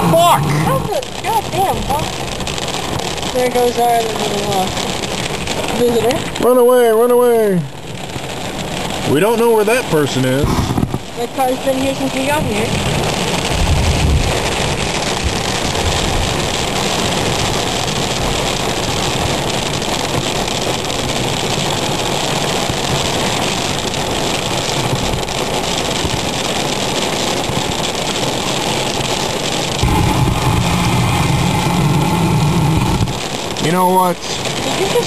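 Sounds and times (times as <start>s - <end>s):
heavy rain on a car: 0.0s - 35.0s
wind: 0.0s - 35.0s
low rumble: 10.4s - 19.4s, 29.8s - 33.7s
car engine running: 29.8s - 33.6s.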